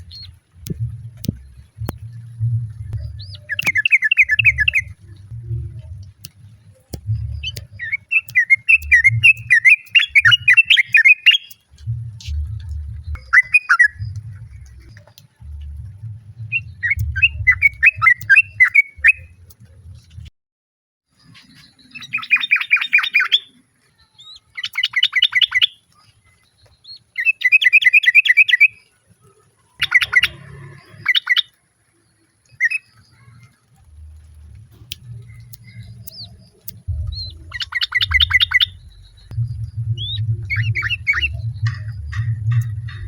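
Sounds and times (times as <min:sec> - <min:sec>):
low rumble: 0:00.0 - 0:08.1, 0:11.6 - 0:20.3, 0:33.6 - 0:43.0.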